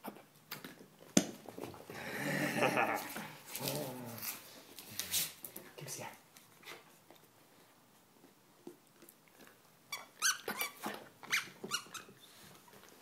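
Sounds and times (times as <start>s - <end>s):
rubber squeaky toy squeaking: 9.9s - 12.3s.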